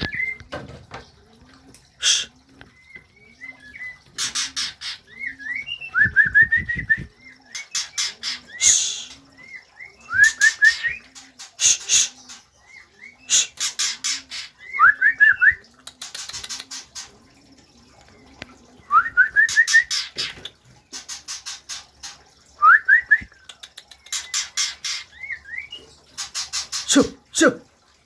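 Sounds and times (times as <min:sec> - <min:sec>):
songbird rattling and whistling: 0:16.0 - 0:17.1, 0:23.3 - 0:26.9.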